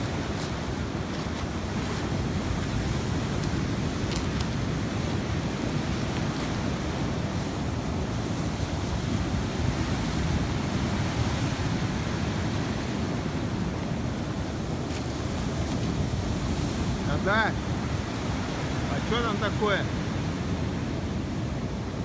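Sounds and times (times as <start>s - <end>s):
sea surf washing on shore: 0.0s - 22.0s
wind buffeting microphone: 0.0s - 22.0s.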